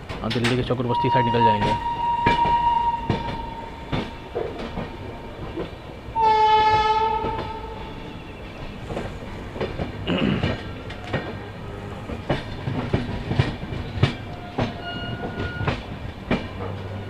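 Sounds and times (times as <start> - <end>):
train wheels clacking over rail joints: 0.0 - 17.0
train horn blast: 0.9 - 4.6, 6.2 - 8.3.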